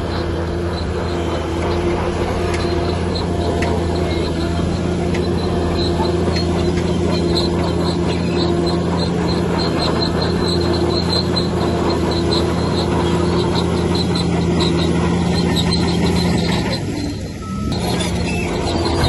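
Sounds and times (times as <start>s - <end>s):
bulldozer diesel engine running: 0.0s - 19.0s
steel tracks squeaking: 0.0s - 19.0s.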